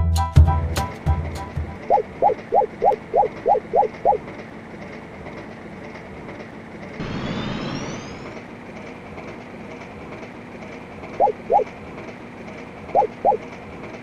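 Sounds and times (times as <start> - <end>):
train rumbling by: 0.6 - 14.0
high-pitched whine: 7.0 - 8.4.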